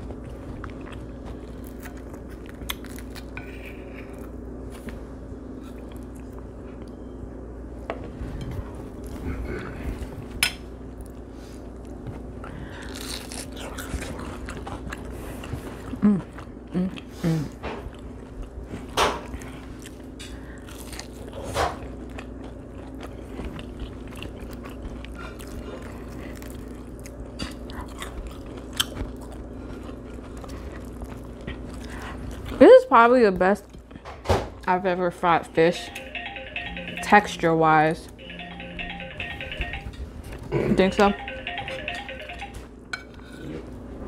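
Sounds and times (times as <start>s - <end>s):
crunchy chewing: 0.0s - 4.8s, 12.7s - 17.1s, 17.8s - 32.6s.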